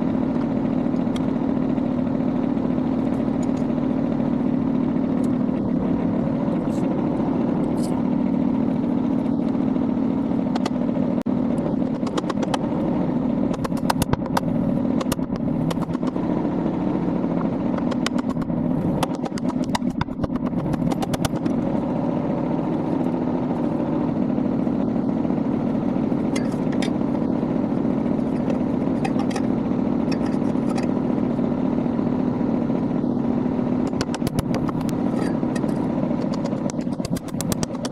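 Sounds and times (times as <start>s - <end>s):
tractor diesel engine running: 0.0s - 37.9s
sharp metallic clicks and clatter: 2.9s - 3.9s, 5.1s - 8.1s, 10.4s - 10.9s, 11.5s - 16.3s, 17.6s - 21.8s, 26.2s - 27.4s, 28.1s - 31.2s, 33.8s - 37.9s.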